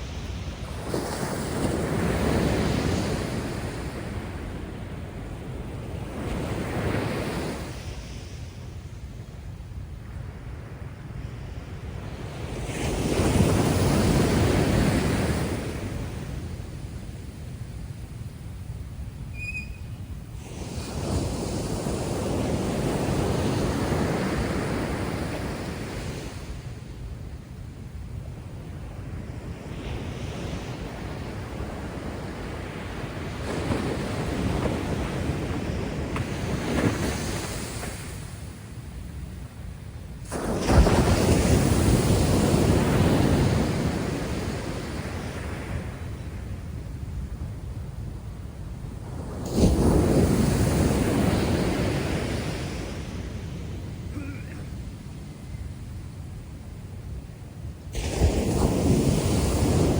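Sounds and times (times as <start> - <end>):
waves breaking: 0.0 - 8.5, 19.3 - 26.9, 29.2 - 39.1, 40.1 - 46.4, 48.4 - 55.5, 57.7 - 59.9
surf washing up: 0.0 - 59.9
wind rumbling on microphone: 0.0 - 59.9.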